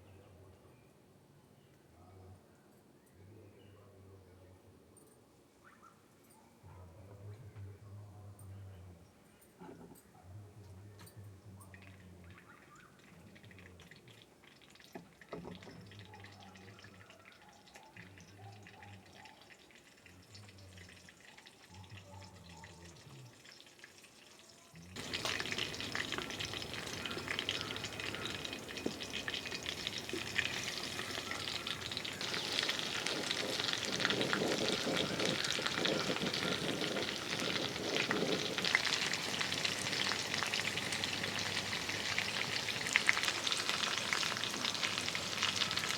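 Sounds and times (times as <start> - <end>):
food sizzling in hot oil: 23.3 - 45.9.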